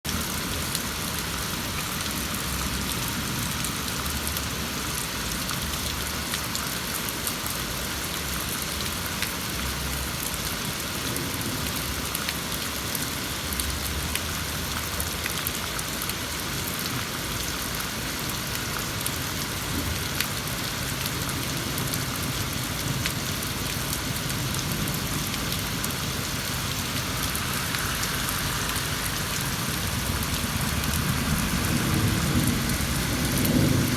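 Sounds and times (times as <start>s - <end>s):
heavy rain pouring: 0.0s - 33.9s
raindrops ticking on surfaces: 0.1s - 33.9s
low thunder rumbles: 27.2s - 33.9s.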